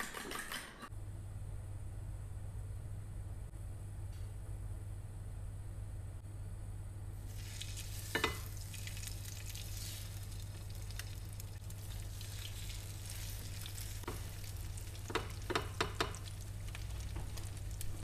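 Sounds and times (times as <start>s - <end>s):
bread sizzling in oil: 7.2s - 18.0s.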